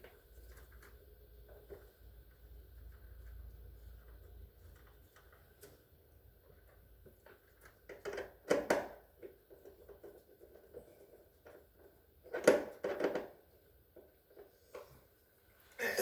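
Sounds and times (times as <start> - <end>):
refrigerator parts clicking and knocking: 7.1 - 14.4.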